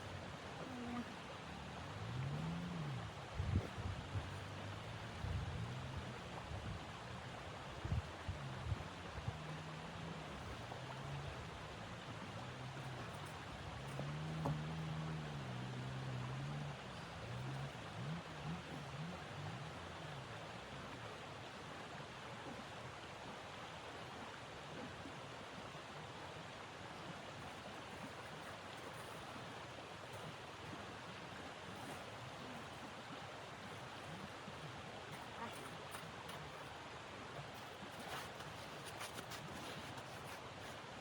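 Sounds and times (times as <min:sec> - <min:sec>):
faint crackles: 0:37.5 - 0:40.8.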